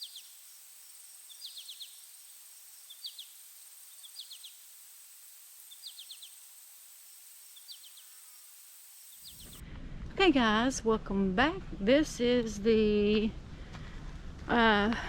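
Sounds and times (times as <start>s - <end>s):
songbird singing: 0.0s - 9.6s
steady high-pitched whine: 0.0s - 10.3s.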